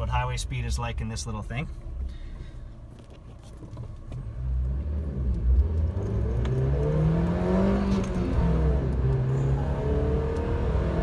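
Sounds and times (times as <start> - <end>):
car engine accelerating: 3.8 - 11.0.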